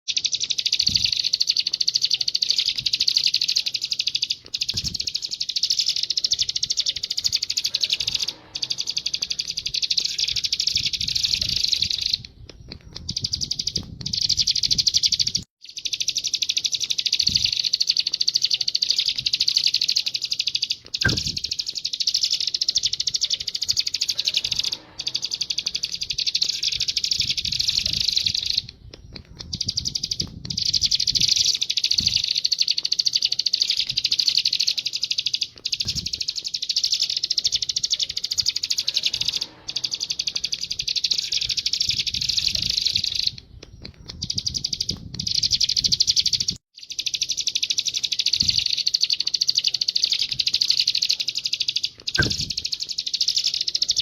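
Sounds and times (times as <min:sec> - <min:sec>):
canary singing trills: 0:00.1 - 0:54.0.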